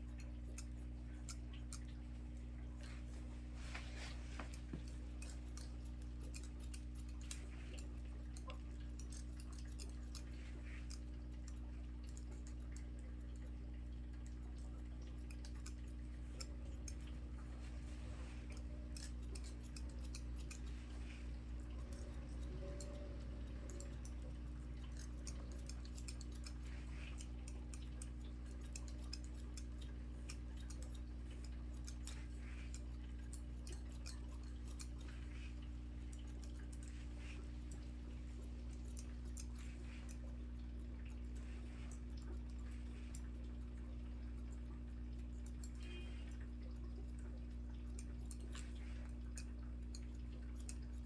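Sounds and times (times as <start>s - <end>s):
steady low hum: 0.0s - 51.0s
scissors snipping hair: 0.1s - 1.9s, 4.4s - 12.8s, 14.4s - 40.4s, 47.9s - 51.0s.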